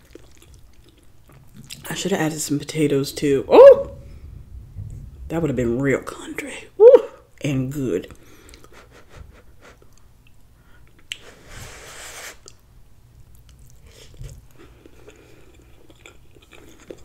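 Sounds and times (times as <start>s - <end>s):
soft chewing and mouth smacks: 0.0s - 2.0s, 8.1s - 8.8s, 9.8s - 11.3s, 12.4s - 17.0s.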